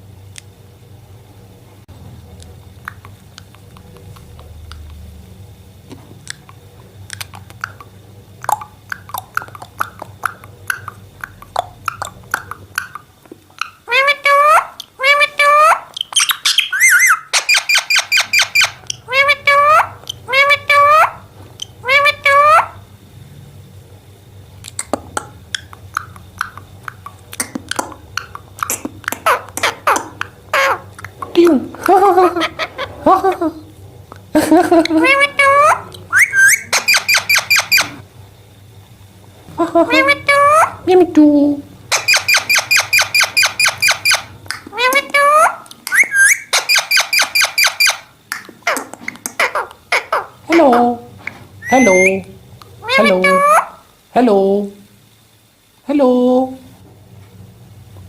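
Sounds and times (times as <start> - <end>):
steady low hum: 0.0 - 58.0
parakeet beak clicking and crunching: 2.2 - 5.1, 6.1 - 22.8, 24.6 - 32.8, 34.1 - 38.0, 41.9 - 53.8.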